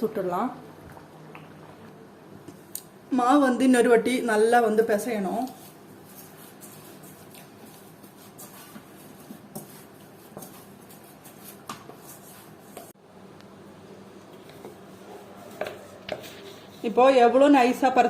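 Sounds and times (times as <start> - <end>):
hands kneading dough: 4.9 - 13.0.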